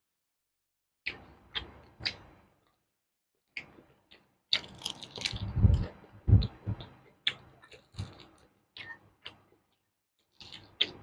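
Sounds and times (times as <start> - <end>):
crunchy vegetables being chewed: 3.4 - 11.0.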